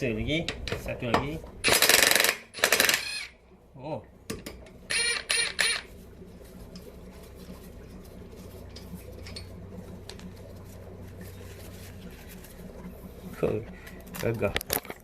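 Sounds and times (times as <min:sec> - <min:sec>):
low steady hum: 0:00.0 - 0:15.0
impact wrench bursts: 0:01.6 - 0:03.4, 0:04.9 - 0:05.9.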